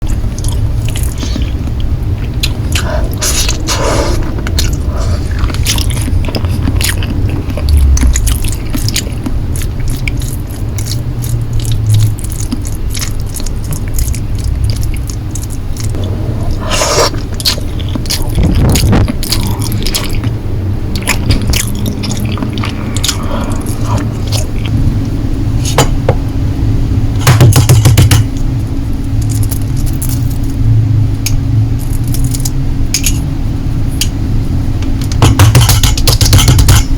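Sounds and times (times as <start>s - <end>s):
chewing and biting noodles: 0.1s - 24.8s
utensils clicking and scraping dish: 35.2s - 36.9s.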